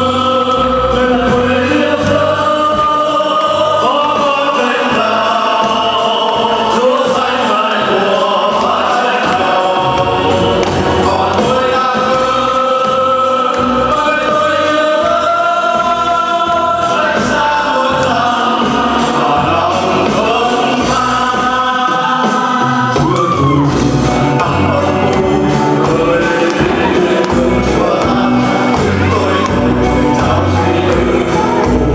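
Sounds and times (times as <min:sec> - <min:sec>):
choir singing held notes: 0:00.0 - 0:31.9
steady music beat: 0:00.0 - 0:31.9.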